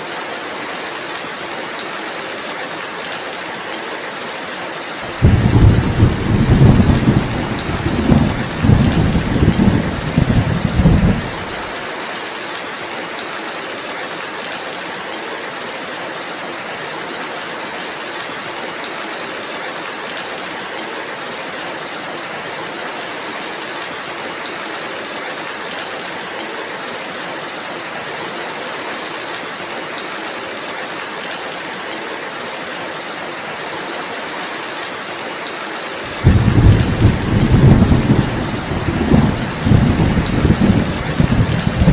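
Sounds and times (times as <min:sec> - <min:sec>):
rain falling: 0:00.0 - 0:41.9
thunder rumbling: 0:05.1 - 0:11.7, 0:36.1 - 0:41.9.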